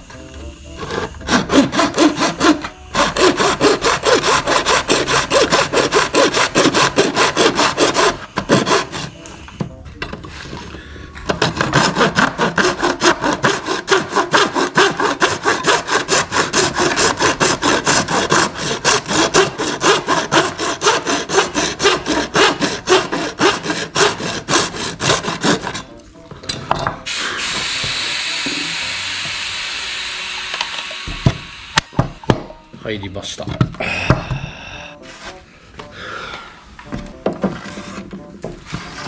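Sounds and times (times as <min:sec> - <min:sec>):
hand tool shaving plastic: 0:00.0 - 0:39.0
steady hiss: 0:26.0 - 0:33.0.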